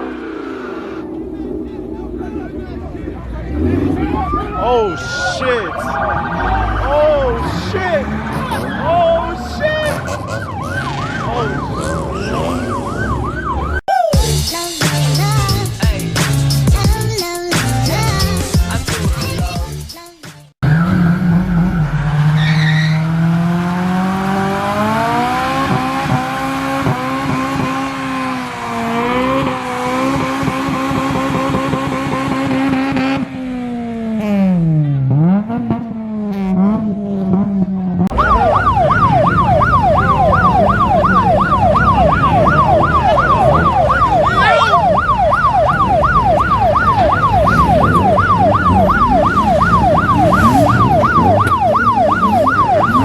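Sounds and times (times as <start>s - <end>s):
car engine accelerating: 0.0s - 13.8s, 20.6s - 53.0s
police siren yelping: 3.5s - 14.2s, 20.6s - 33.2s, 36.4s - 53.0s.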